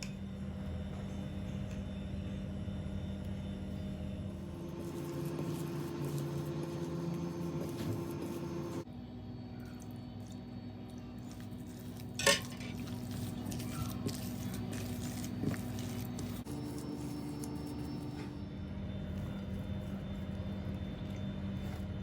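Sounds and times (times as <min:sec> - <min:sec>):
steady background hum: 0:00.0 - 0:22.0
kitchenware clinking: 0:12.2 - 0:12.8.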